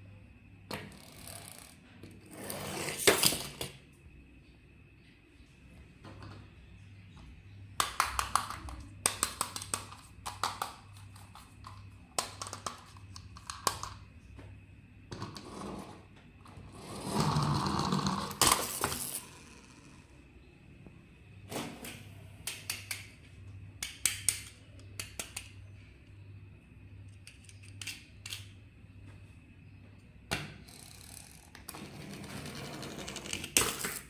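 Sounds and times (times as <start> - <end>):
plastic toy parts clicking and rattling: 27.1 - 28.5.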